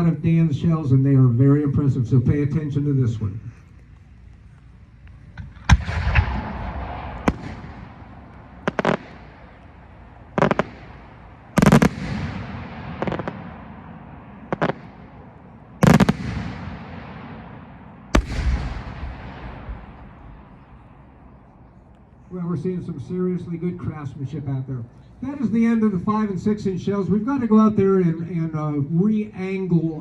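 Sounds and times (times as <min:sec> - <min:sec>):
echoing rumble: 0:00.0 - 0:24.1.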